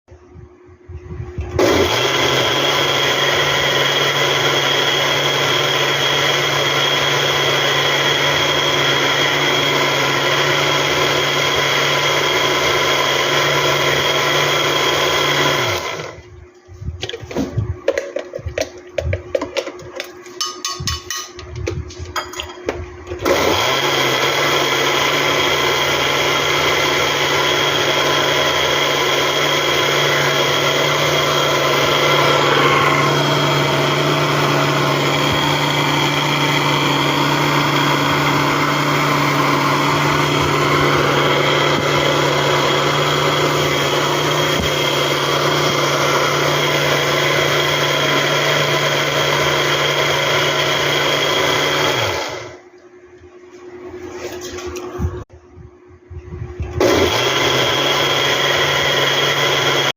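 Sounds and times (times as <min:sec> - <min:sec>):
electric blender motor running: 0:01.5 - 0:16.2, 0:23.2 - 0:52.6, 0:56.8 - 0:59.9.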